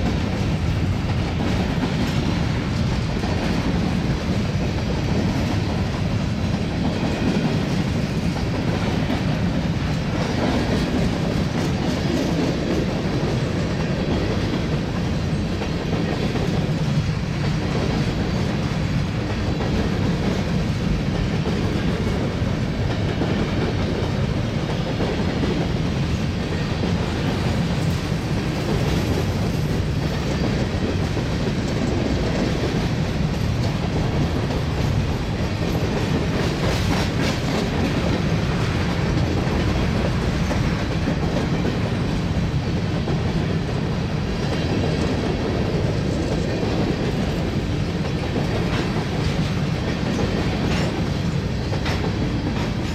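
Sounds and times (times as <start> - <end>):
train wheels clacking on rails: 0.0 - 52.9.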